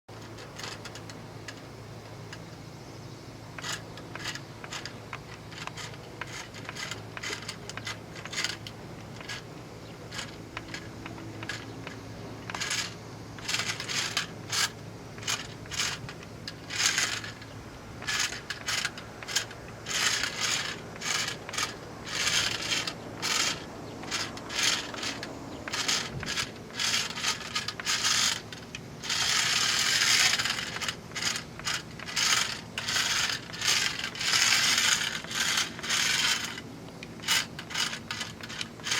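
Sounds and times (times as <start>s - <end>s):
kitten scratching and clawing: 3.6s - 38.9s.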